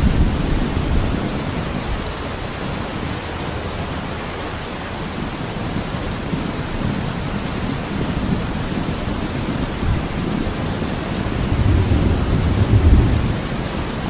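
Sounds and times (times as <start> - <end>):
heavy rain hissing: 0.0 - 14.0
low thunder rumble: 8.0 - 14.0.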